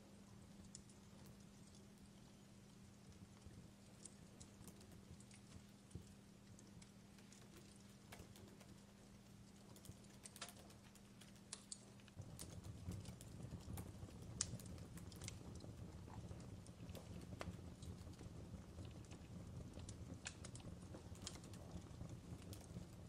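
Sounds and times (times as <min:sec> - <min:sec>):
fireplace crackling: 0:00.0 - 0:23.0.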